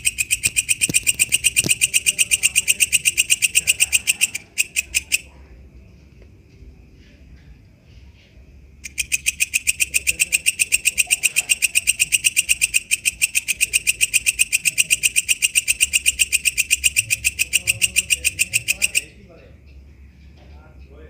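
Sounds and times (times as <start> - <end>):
insect shrill clicking: 0.0 - 5.3, 8.8 - 19.1.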